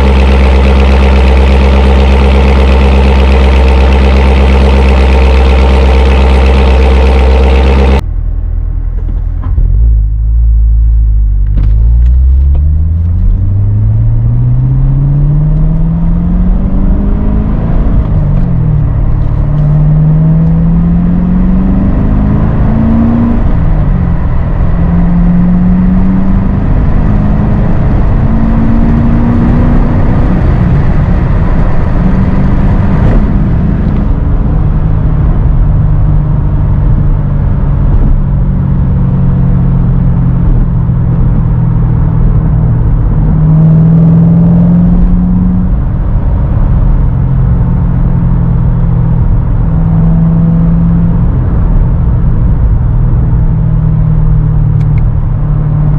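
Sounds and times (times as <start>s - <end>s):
car engine revving while driving: 0.0s - 8.0s, 9.4s - 55.9s.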